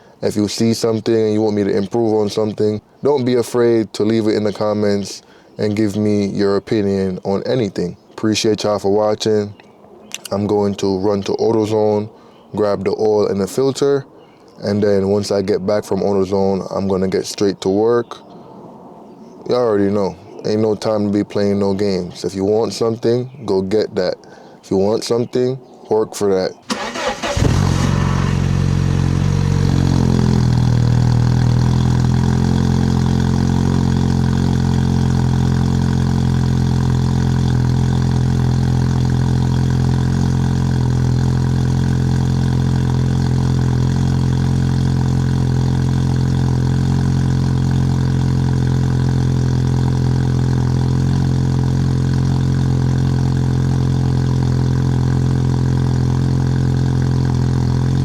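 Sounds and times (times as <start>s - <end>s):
car engine starting and idling: 26.6s - 58.0s.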